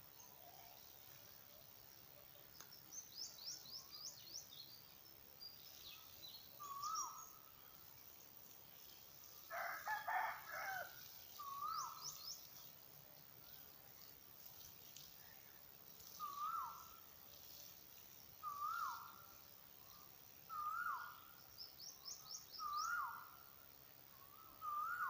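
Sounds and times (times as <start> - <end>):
small birds chirping: 0.0 - 25.0
rooster crowing: 9.5 - 11.1
bird wavering call: 18.4 - 19.2, 24.2 - 25.0.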